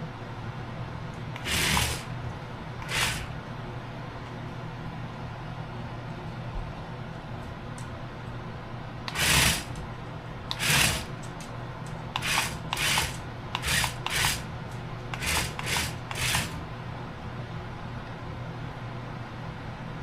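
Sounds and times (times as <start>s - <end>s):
toy car tyres skidding: 1.4s - 2.1s, 2.8s - 3.3s, 9.1s - 9.8s, 10.5s - 11.1s.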